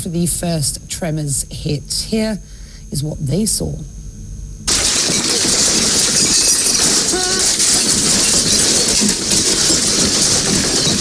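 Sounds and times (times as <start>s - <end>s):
things rattling in an earthquake: 4.7s - 11.0s.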